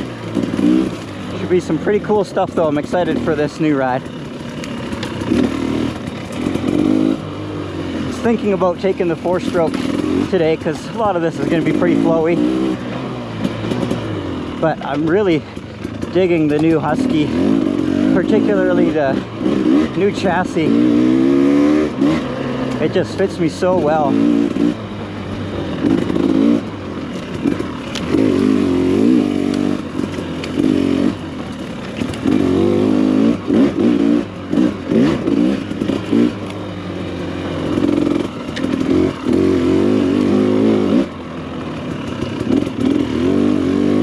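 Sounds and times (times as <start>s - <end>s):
dirt bike engine revving: 0.0s - 44.0s.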